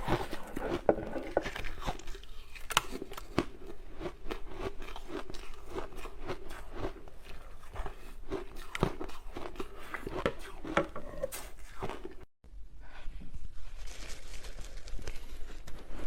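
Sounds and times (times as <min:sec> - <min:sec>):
ice crunching being chewed: 0:00.0 - 0:12.3.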